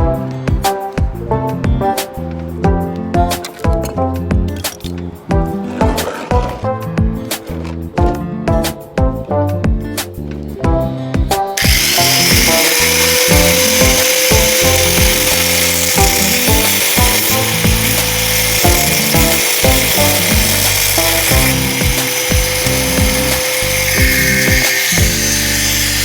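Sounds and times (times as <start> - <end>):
background music with a beat: 0.0 - 26.0
power tool whining: 11.6 - 26.0.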